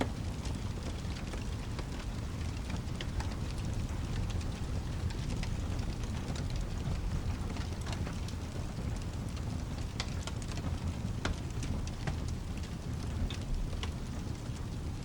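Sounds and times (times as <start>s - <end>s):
log fire crackling: 0.0s - 15.0s
steady rain: 0.0s - 15.0s.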